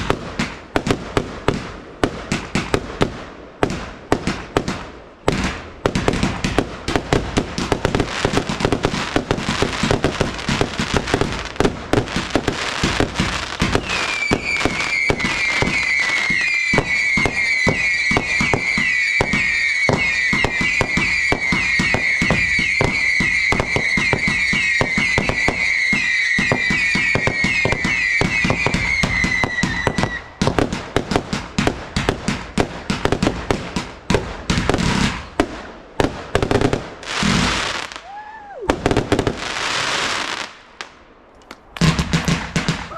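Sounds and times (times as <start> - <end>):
fireworks bangs and crackles: 0.0 - 42.9
shrill firework whistles: 13.6 - 30.4.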